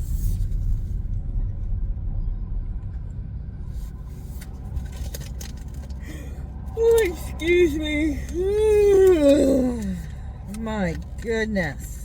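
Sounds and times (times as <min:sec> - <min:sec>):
car engine idling: 0:03.9 - 0:12.0.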